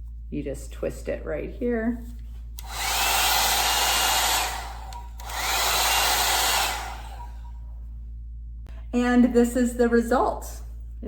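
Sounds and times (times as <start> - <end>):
blow dryer blowing hot air: 2.6 - 7.5.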